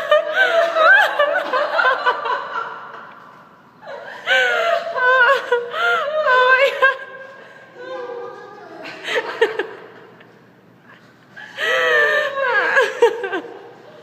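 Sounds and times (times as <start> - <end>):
person laughing high-pitched: 11.6 - 14.0.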